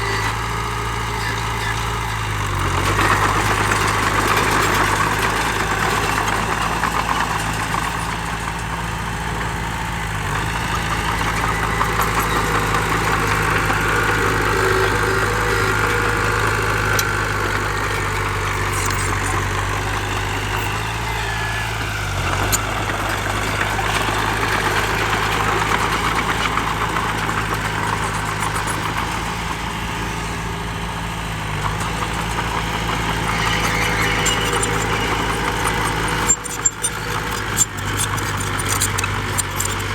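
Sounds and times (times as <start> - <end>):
heavy diesel engine running: 0.0 - 39.9
mechanical noise: 11.0 - 22.7, 31.7 - 39.9.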